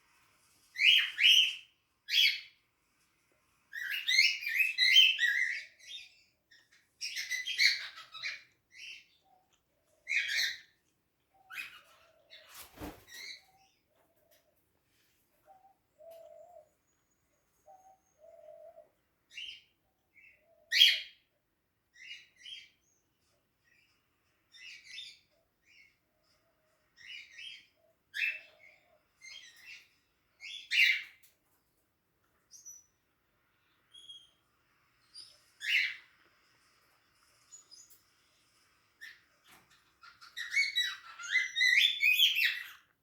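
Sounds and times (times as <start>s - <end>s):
cockatiels chirping: 0.8s - 2.6s, 3.7s - 13.8s, 17.6s - 21.2s, 22.0s - 31.3s, 35.1s - 36.2s, 39.0s - 43.0s.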